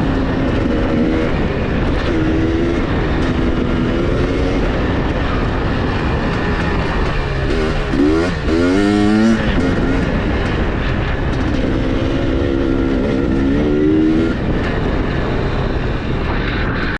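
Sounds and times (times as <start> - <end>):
dirt bike engine revving: 0.0 - 16.8
constant rush of noise: 0.0 - 16.9.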